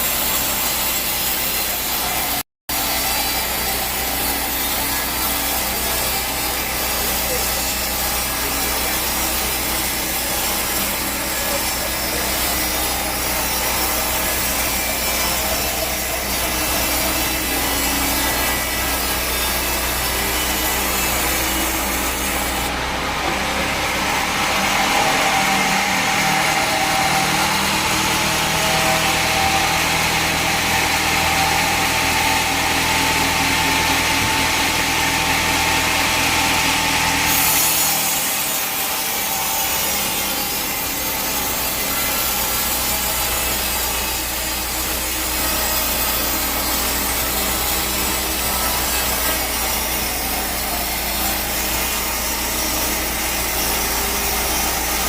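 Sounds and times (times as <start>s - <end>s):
bandsaw cutting log: 0.0s - 55.0s.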